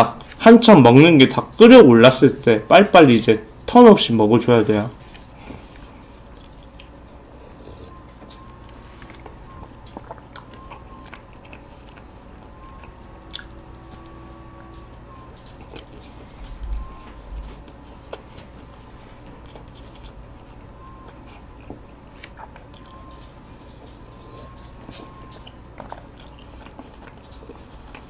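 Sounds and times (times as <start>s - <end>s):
steady faint hum: 0.0s - 28.0s
chewing mouth sounds: 5.1s - 13.6s, 15.1s - 28.0s.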